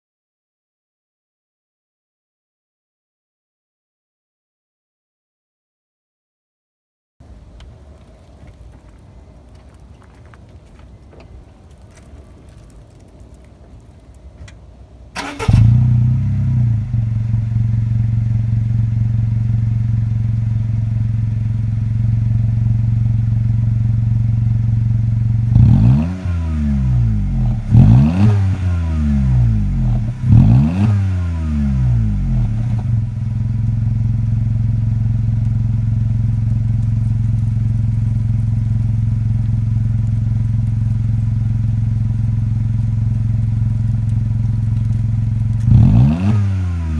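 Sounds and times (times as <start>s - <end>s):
car engine starting and idling: 7.2s - 46.9s
car engine revving: 25.2s - 34.0s, 36.3s - 46.9s.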